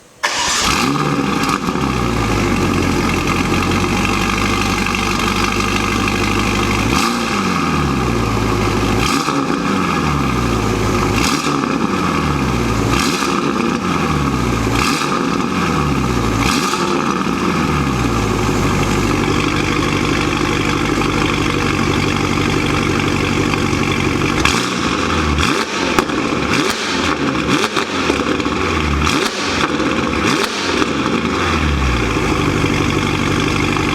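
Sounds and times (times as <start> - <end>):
car engine revving: 0.2 - 33.9.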